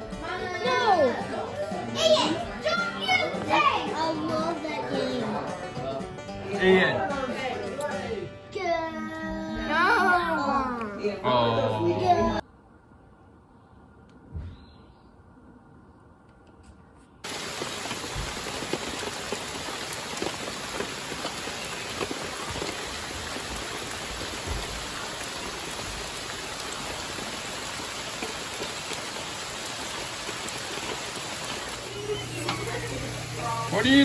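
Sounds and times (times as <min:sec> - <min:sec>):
heavy rain falling: 0:17.2 - 0:34.0.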